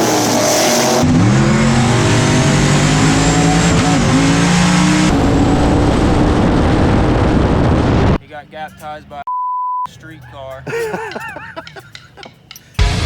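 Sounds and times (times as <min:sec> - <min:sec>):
race car engine revving: 0:00.0 - 0:08.2.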